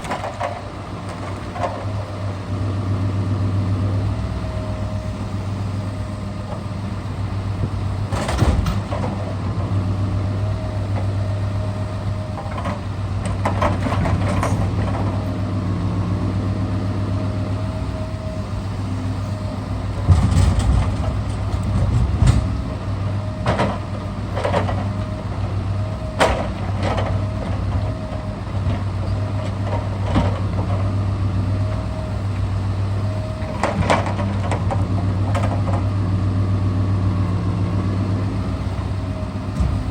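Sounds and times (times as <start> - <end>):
diesel truck engine running: 0.0 - 39.9
logs knocking and clunking: 17.6 - 36.8, 37.4 - 39.9.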